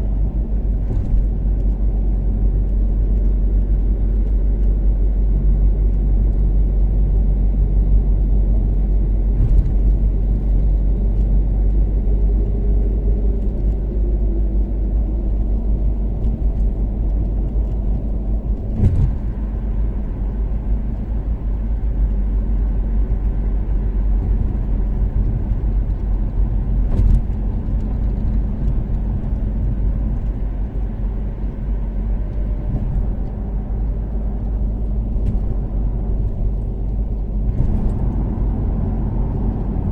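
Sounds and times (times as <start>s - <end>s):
car engine cruising: 0.0s - 39.9s
road and tyre rumble: 0.0s - 39.9s.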